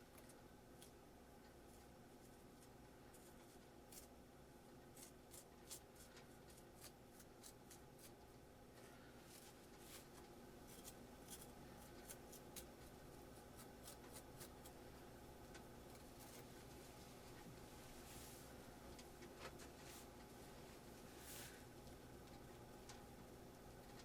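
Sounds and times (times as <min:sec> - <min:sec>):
small clicks and scratches: 0:00.0 - 0:04.2, 0:04.9 - 0:14.8, 0:15.5 - 0:17.5, 0:21.8 - 0:23.1, 0:23.7 - 0:24.0
faint low hum: 0:00.0 - 0:24.0.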